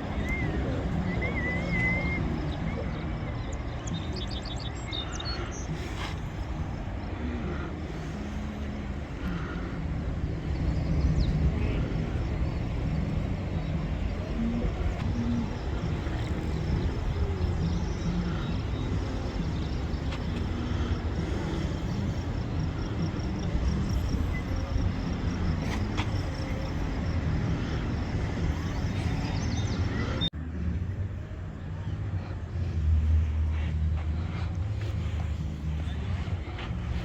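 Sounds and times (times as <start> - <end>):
wind buffeting microphone: 0.0 - 30.3.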